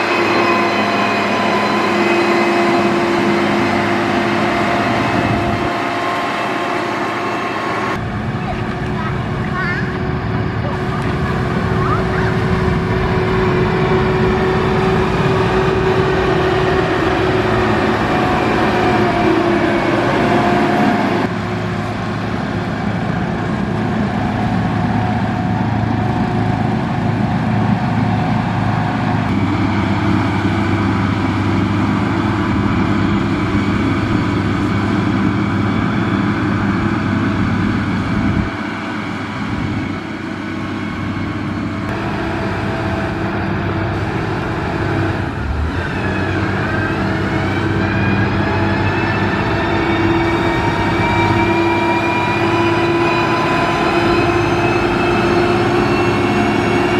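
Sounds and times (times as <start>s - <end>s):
grader diesel engine running: 0.0s - 56.9s.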